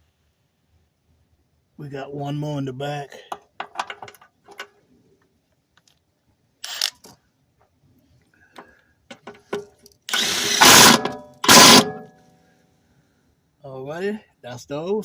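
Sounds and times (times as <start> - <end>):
tools clicking and knocking: 3.3 - 4.8, 8.6 - 12.0
power tool tightening bolt: 6.6 - 7.0, 10.1 - 12.0.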